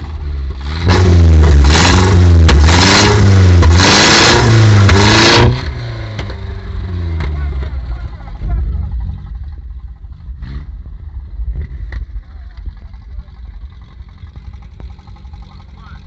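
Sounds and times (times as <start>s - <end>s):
car engine revving: 0.0s - 16.0s
sharp exhaust pops: 0.5s - 16.0s
lumpy engine idle: 6.2s - 16.0s.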